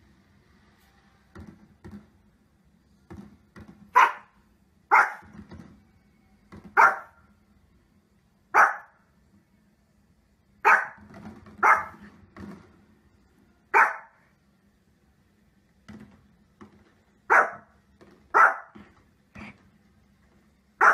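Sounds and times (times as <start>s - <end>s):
small dog barking: 3.9s - 5.3s, 6.7s - 7.2s, 8.5s - 9.0s, 10.6s - 11.0s, 11.6s - 12.0s, 13.7s - 14.2s, 17.3s - 18.8s.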